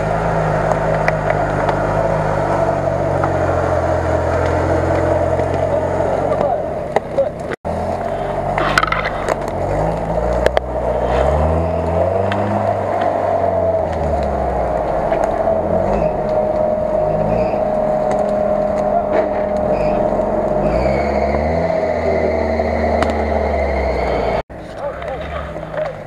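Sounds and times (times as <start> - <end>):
off-road vehicle engine revving: 0.0 - 26.0
steady whine: 11.8 - 26.0.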